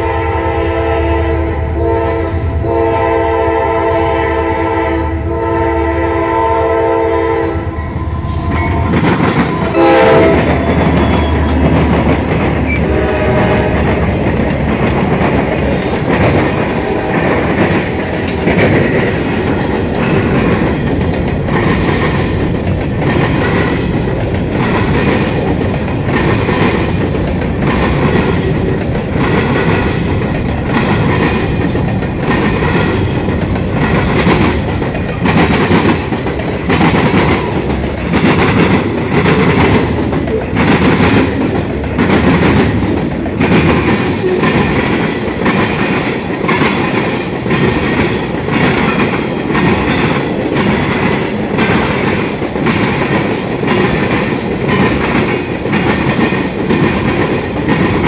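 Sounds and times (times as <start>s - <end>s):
diesel locomotive horn blasts: 0.0s - 11.9s, 12.7s - 14.2s, 16.6s - 17.6s
train wheels clattering over crossing: 7.9s - 58.0s.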